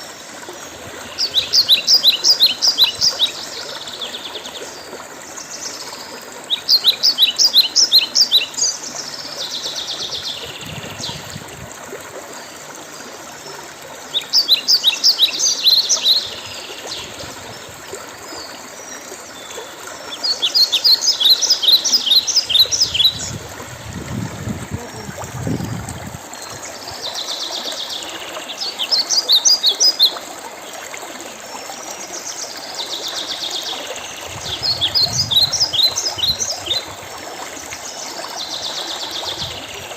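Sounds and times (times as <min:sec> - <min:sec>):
songbirds singing high notes: 0:20.2 - 0:24.0, 0:34.2 - 0:37.0.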